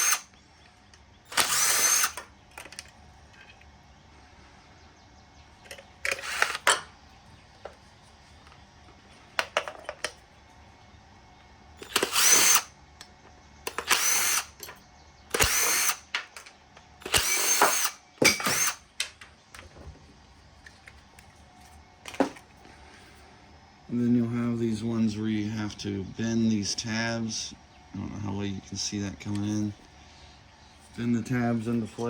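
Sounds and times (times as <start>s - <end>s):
power drill bursts: 0.0s - 0.3s, 1.3s - 2.3s, 6.1s - 6.8s, 11.8s - 12.7s, 13.7s - 14.7s, 15.3s - 16.1s, 17.0s - 18.8s
metal parts clicking: 1.3s - 3.6s, 5.7s - 6.9s, 11.8s - 12.7s, 13.7s - 19.3s.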